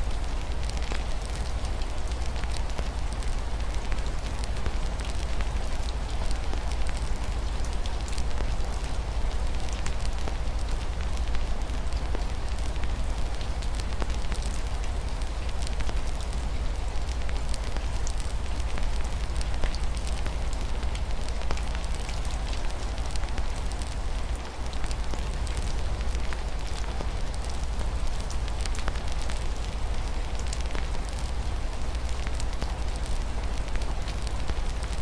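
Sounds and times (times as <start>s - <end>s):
fireplace fire crackling: 0.0s - 35.0s
rain hiss: 0.0s - 35.0s.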